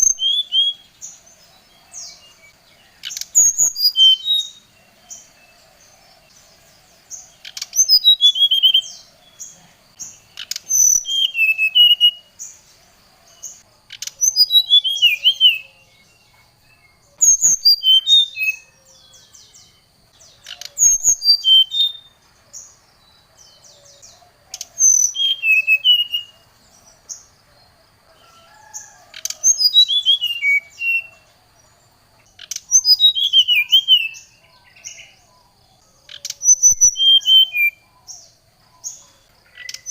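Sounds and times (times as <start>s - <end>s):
bird song descending phrases: 0.0s - 27.3s.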